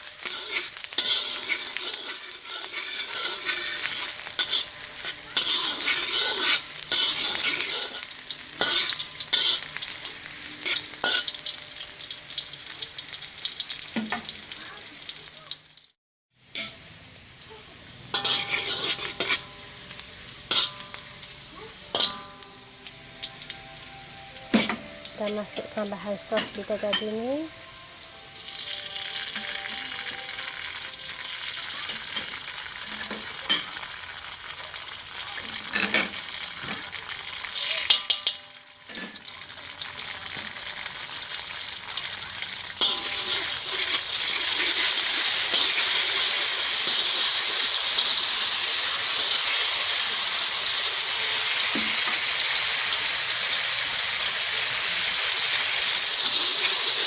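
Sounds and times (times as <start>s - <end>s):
food sizzling in hot oil: 0.0s - 57.0s
utensil scraping and knocking pan: 0.2s - 8.0s.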